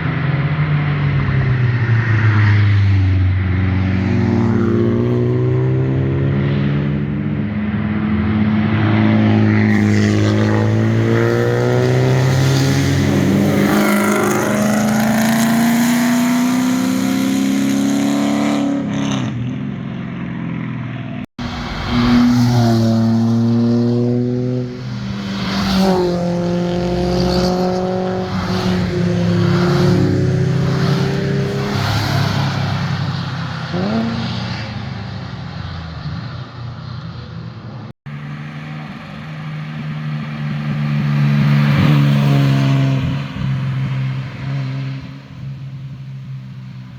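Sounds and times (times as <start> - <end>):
cars accelerating past: 0.0 - 46.9
car revving through gears: 8.9 - 19.4, 21.4 - 34.8.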